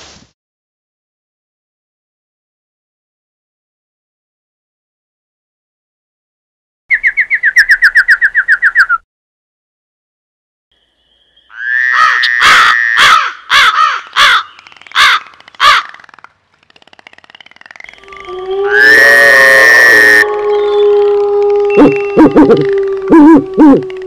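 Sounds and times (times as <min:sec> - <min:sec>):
bird trill: 0:06.9 - 0:09.0, 0:10.8 - 0:16.2, 0:19.8 - 0:21.0
harsh bird caws: 0:11.5 - 0:16.1.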